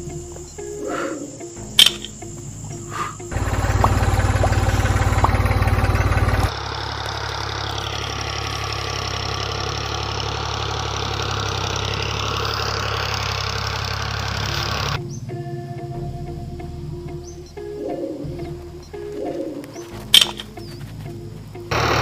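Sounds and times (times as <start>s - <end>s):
diesel engine idling: 2.5s - 15.0s, 19.9s - 22.0s.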